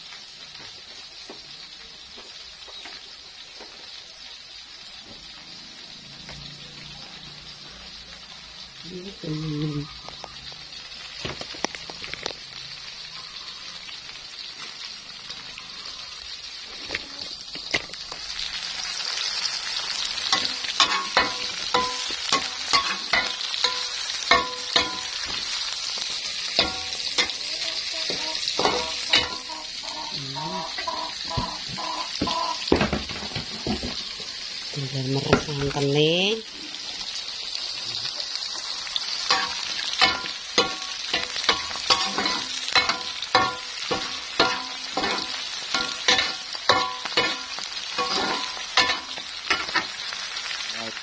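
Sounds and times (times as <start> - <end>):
food sizzling in hot oil: 0.0 - 51.0
spatula clinking against wok: 20.3 - 25.2, 26.6 - 29.6, 39.3 - 49.8.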